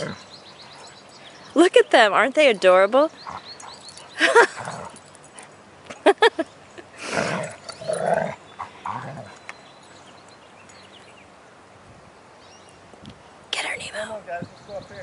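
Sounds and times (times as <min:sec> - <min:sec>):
dogs grumbling: 0:00.0 - 0:00.9, 0:03.2 - 0:05.1, 0:07.0 - 0:09.4.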